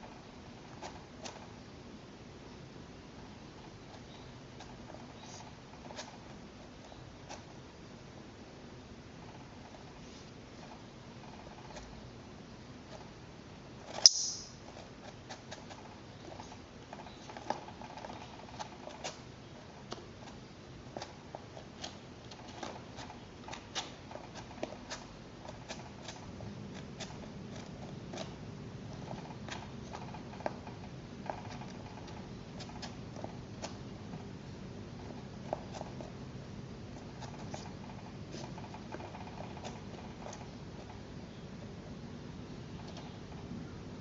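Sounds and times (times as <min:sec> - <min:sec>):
weasel clicking: 0:14.0 - 0:14.6.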